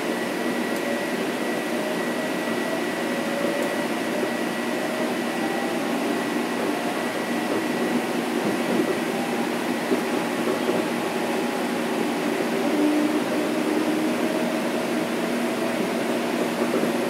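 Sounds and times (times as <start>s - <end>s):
wheel and track rumble: 3.4s - 17.0s.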